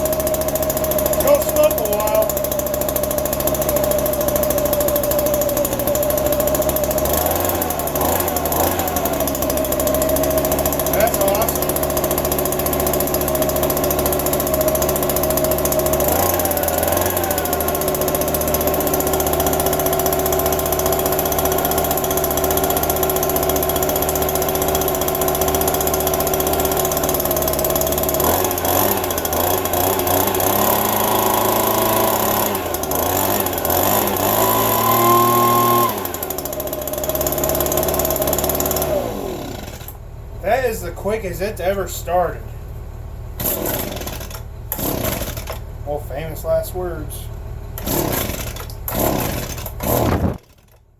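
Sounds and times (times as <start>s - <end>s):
small two-stroke engine running: 0.0s - 42.4s, 43.3s - 50.9s.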